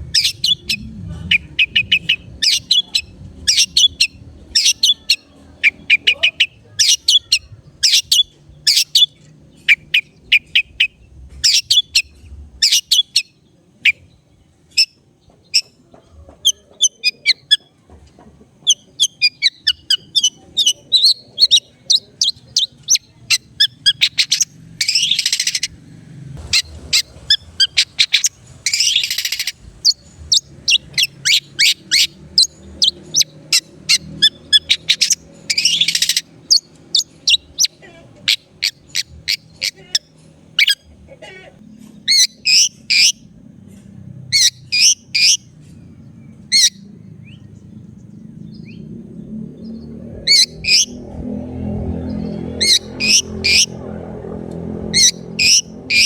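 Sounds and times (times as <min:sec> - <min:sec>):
harsh scratchy bird calls: 0:00.0 - 0:14.0, 0:18.6 - 0:25.8, 0:26.4 - 0:43.3, 0:44.3 - 0:47.4, 0:48.0 - 0:56.0
bird singing chirps and whistles: 0:00.1 - 0:13.3.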